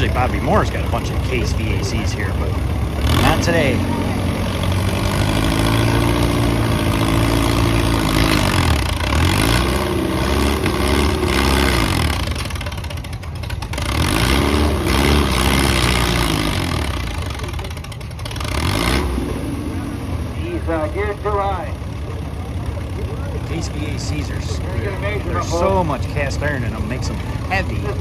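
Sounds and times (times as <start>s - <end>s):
announcer speaking: 0.0s - 4.8s, 20.2s - 28.0s
tractor engine working under load: 0.0s - 28.0s.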